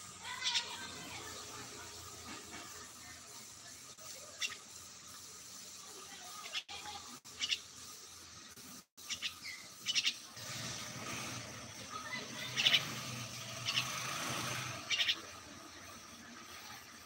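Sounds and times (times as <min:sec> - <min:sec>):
bird chirping: 0:00.3 - 0:01.6, 0:04.3 - 0:04.8, 0:07.3 - 0:07.9, 0:09.0 - 0:10.2, 0:12.0 - 0:14.0, 0:14.7 - 0:15.4.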